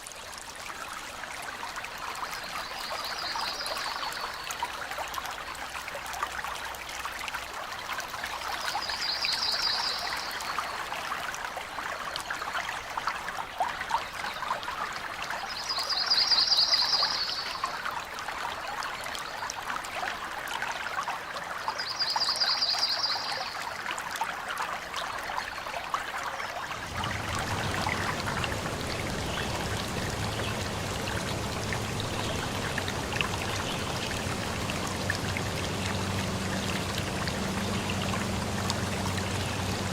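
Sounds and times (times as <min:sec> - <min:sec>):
stream trickling and splashing: 0:00.0 - 0:39.9
low steady hum: 0:26.7 - 0:39.9.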